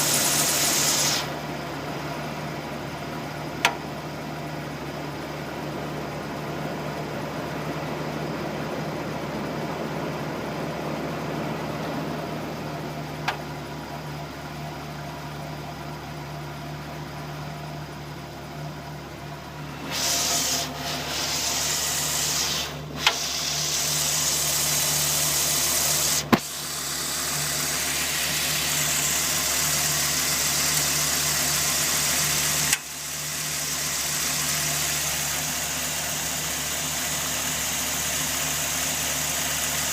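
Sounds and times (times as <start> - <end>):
loud rushing hiss: 0.0 - 1.4, 19.7 - 29.4
truck engine idling: 0.0 - 39.9.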